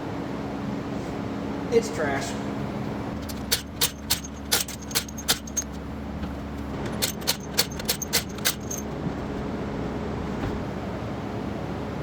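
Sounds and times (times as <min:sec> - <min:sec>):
sharp metallic clicks and clinks: 0:03.2 - 0:05.9, 0:06.8 - 0:09.0.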